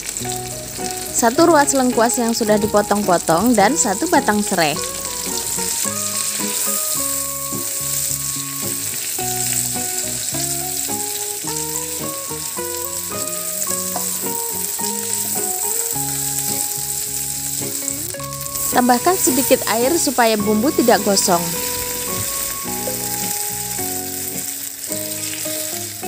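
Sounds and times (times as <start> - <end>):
background music melody: 0.0 - 26.0
paste sizzling in oil: 0.0 - 26.0.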